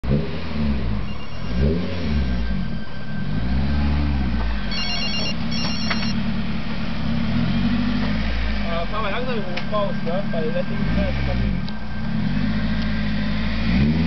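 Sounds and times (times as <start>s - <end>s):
car engine revving: 0.0s - 14.0s
trilling electronic beeps: 1.0s - 3.5s, 4.6s - 6.2s.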